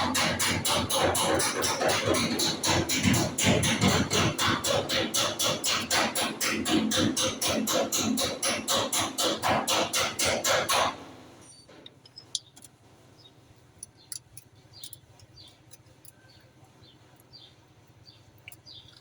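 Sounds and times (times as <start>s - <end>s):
small birds chirping: 11.5s - 19.0s.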